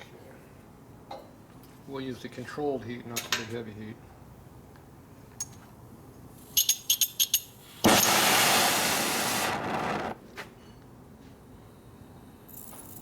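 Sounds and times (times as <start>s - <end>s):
gas flame hissing: 7.6s - 10.2s.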